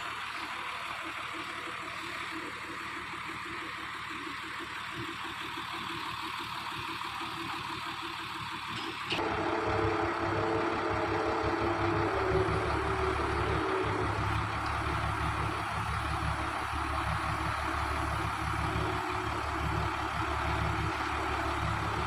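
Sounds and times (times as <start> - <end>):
heavy truck engine running: 0.0 - 22.0.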